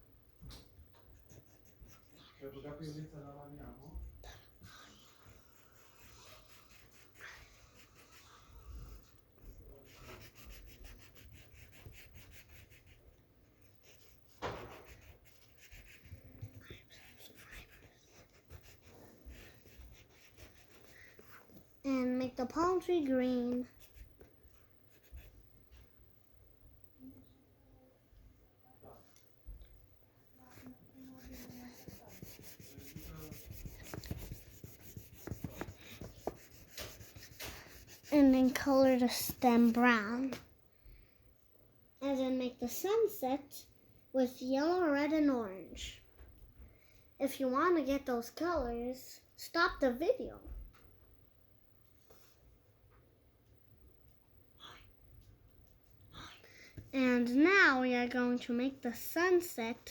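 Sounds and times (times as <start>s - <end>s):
colouring tool scratching on paper: 1.2s - 2.2s, 4.6s - 21.5s, 23.6s - 24.3s, 30.5s - 39.9s.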